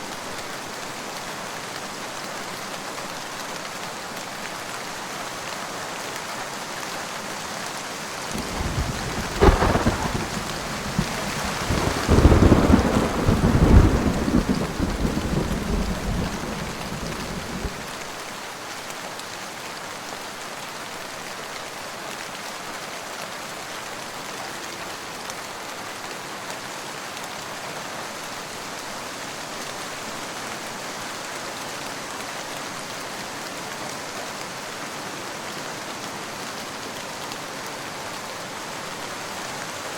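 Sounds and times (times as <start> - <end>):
steady rain: 0.0 - 39.9
thunder crack and rumble: 8.3 - 17.9.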